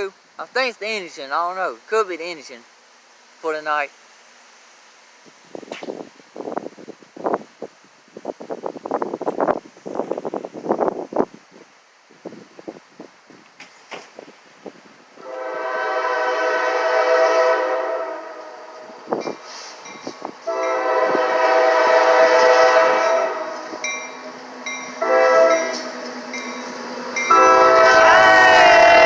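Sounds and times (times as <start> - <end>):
deep rumble of train: 4.0 - 29.0
wind gusts on microphone: 5.2 - 26.1
locomotive air horn blasts: 15.2 - 19.1, 20.4 - 23.8, 25.0 - 25.9, 27.3 - 29.0.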